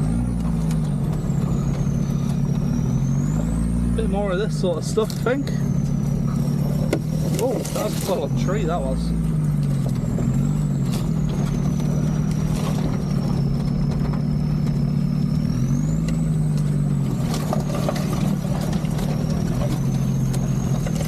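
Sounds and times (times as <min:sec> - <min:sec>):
diesel engine running: 0:00.0 - 0:21.0
knocks over bumps: 0:05.2 - 0:08.4.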